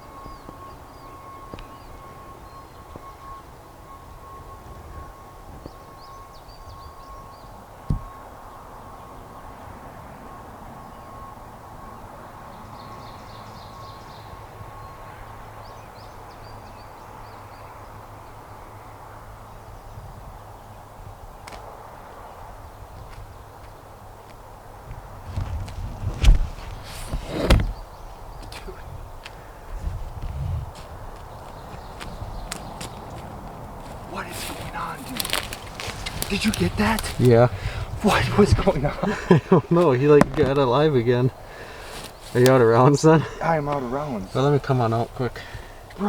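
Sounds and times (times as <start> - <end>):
small birds chirping: 0.0 - 4.5, 5.2 - 9.6, 12.0 - 18.4, 26.5 - 46.0
steady background hush: 30.9 - 46.0.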